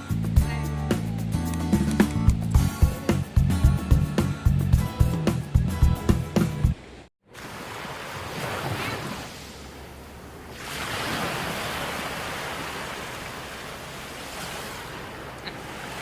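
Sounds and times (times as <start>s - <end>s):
sea waves washing on beach: 7.3s - 16.0s.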